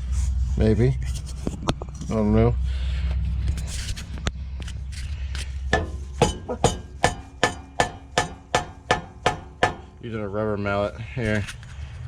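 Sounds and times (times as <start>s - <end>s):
rubber mallet striking metal pipe: 5.7s - 10.0s
pipe ringing: 5.7s - 10.1s.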